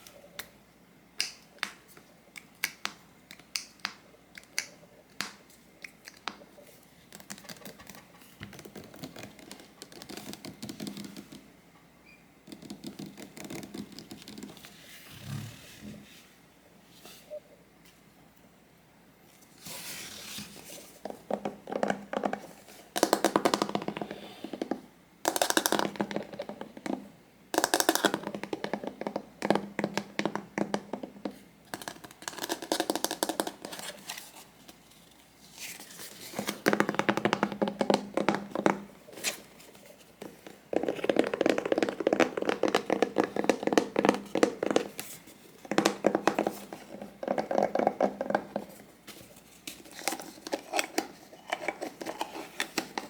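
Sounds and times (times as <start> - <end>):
hands tapping small objects: 1.2 - 6.5, 21.0 - 33.8, 36.4 - 38.9, 40.2 - 48.8.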